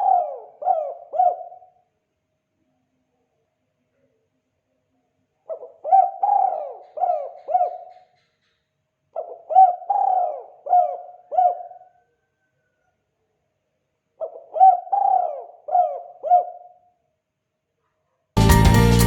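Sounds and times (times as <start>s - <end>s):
dove cooing: 0.0s - 1.7s, 5.5s - 8.0s, 9.2s - 11.9s, 14.2s - 16.6s.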